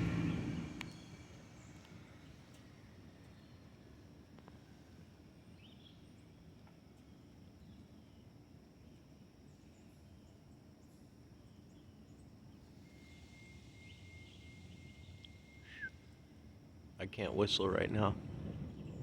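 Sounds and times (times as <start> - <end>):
low rumble: 0.0 - 1.2, 17.1 - 19.0
faint bird chirps: 0.1 - 4.0, 5.4 - 17.4
thin steady high tone: 12.6 - 17.4
short falling whistle: 12.9 - 16.2.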